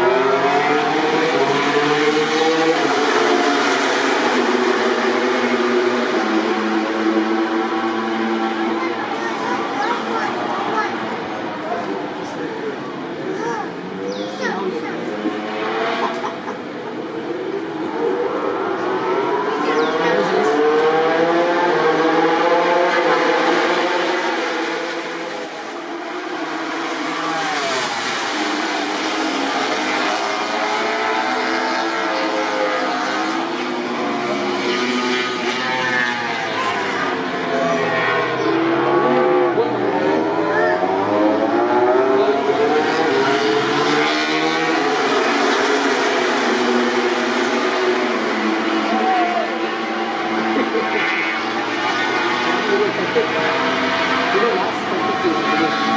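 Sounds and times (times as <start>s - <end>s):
racing motorcycle engines revving: 0.0s - 55.9s.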